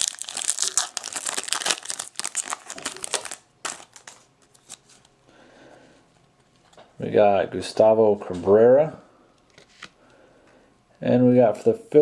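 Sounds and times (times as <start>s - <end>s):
plastic packaging crinkling: 0.0s - 5.1s.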